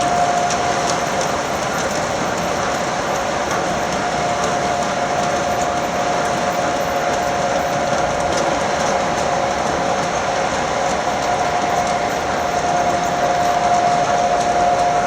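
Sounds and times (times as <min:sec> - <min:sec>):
model train wheels rumbling on rails: 0:00.0 - 0:15.0.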